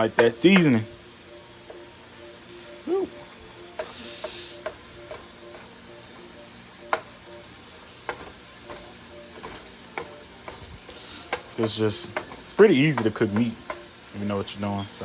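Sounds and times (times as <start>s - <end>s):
meat sizzling in a frying pan: 0.0s - 15.0s
utensil scraping a pan: 8.1s - 13.8s.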